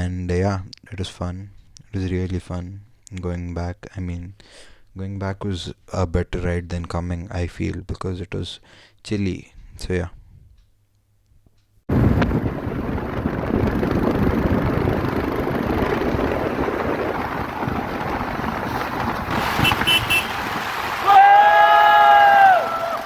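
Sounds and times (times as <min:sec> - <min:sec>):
road and wind rumble: 0:11.9 - 0:23.0
loud vehicle horn: 0:19.4 - 0:20.5
short horn beeps: 0:19.6 - 0:20.3.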